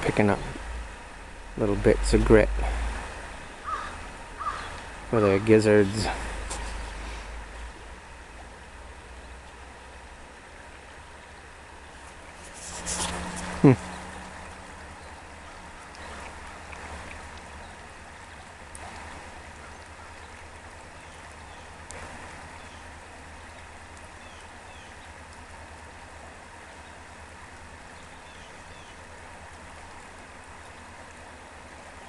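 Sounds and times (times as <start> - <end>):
stream running over bed: 0.0 - 32.0.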